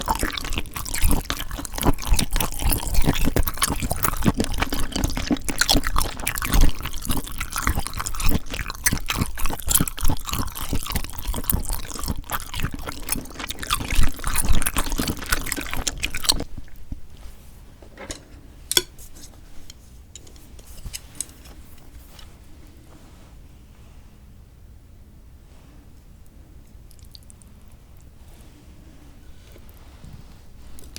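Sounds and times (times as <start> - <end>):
wet noodle eating sounds: 0.0 - 17.4, 26.8 - 29.8.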